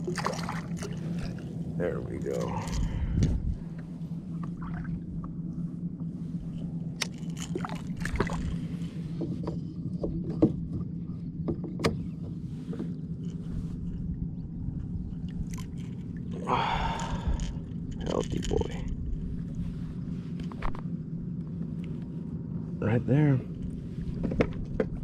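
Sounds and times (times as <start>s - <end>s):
small water splashes: 0.0s - 1.5s, 7.0s - 8.6s
steady low hum: 0.0s - 25.0s
clicks and knocks on kayak: 9.2s - 12.9s, 24.2s - 25.0s.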